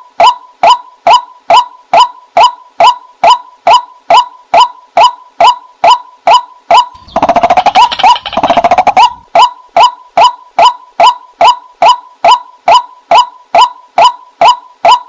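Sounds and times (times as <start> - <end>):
waterhen calling: 6.3 - 12.4.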